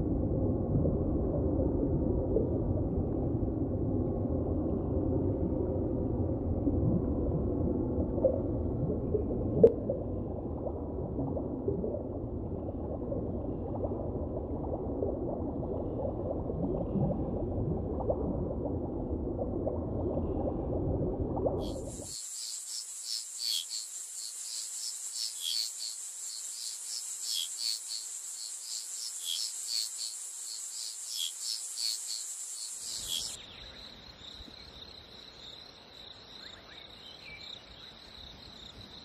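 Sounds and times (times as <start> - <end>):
underwater bubbling and gurgling: 0.0 - 22.3.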